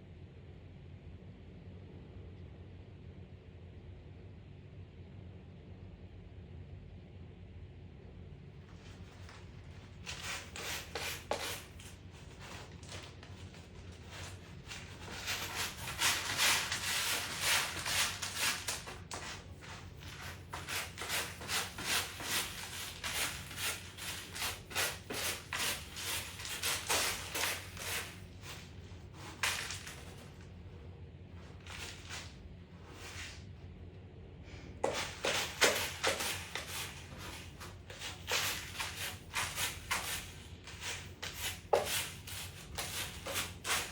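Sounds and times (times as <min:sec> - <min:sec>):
cat scratching litter: 0:08.6 - 0:30.7, 0:31.4 - 0:33.4, 0:34.5 - 0:43.9.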